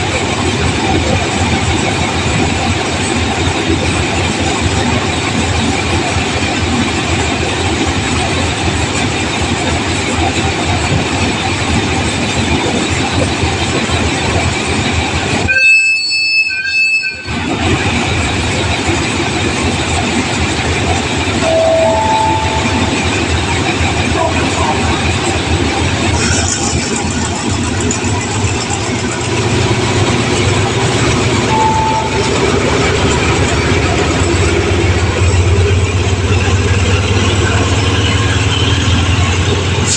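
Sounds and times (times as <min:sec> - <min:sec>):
train wheels and engine rumbling: 0:00.0 - 0:39.9
high multi-tone train horn: 0:15.5 - 0:17.3, 0:21.4 - 0:25.1, 0:31.5 - 0:35.1.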